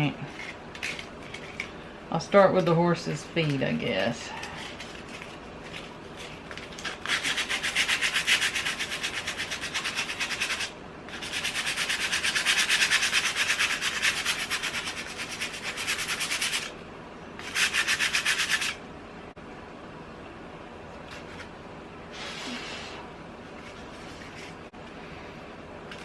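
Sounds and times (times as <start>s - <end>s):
sandpaper rubbing: 4.6s - 16.7s, 17.4s - 18.8s.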